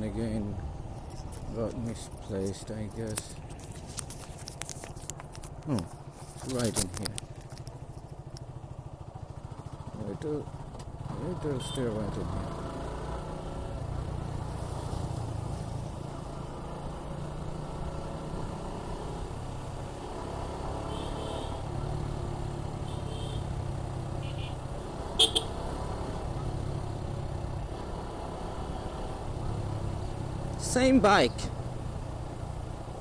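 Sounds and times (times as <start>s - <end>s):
road noise: 0.0s - 33.0s
motorcycle engine running: 5.2s - 14.6s, 20.2s - 28.3s
vehicle horn toot: 20.9s - 21.6s, 22.8s - 23.4s, 24.2s - 24.6s, 25.2s - 25.6s.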